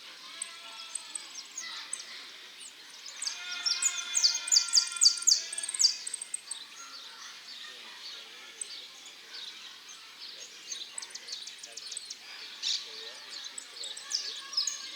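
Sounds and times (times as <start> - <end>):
bird chirps: 3.1 - 7.2.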